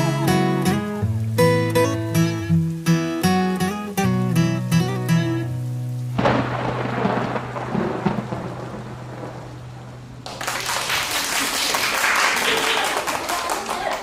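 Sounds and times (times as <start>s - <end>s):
rain: 0.0s - 14.0s
rumbling thunder: 6.2s - 10.5s.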